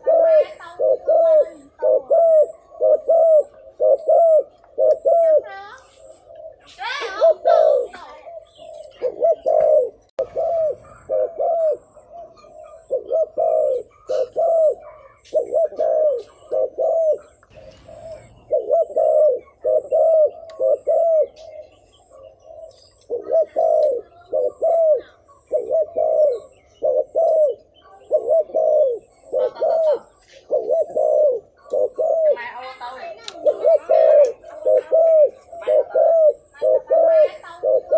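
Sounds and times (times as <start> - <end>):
dove cooing: 0.0 - 37.9.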